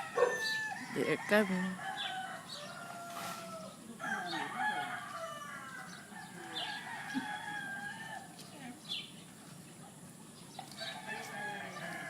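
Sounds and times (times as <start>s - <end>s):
roosters crowing: 0.0s - 8.4s, 10.6s - 12.0s.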